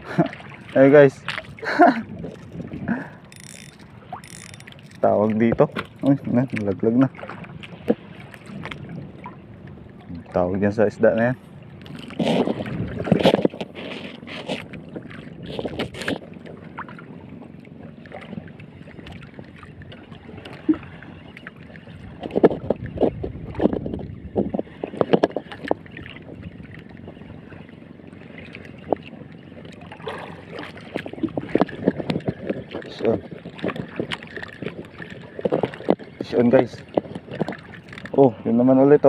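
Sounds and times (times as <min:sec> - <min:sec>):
water slapping boat hull: 0:00.0 - 0:39.0
wind on microphone: 0:01.1 - 0:07.2, 0:11.1 - 0:16.2, 0:21.9 - 0:27.5, 0:30.0 - 0:38.4.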